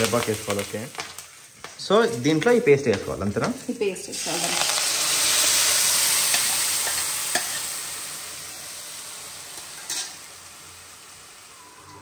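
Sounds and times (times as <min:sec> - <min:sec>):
paste sizzling in pan: 0:00.0 - 0:12.0.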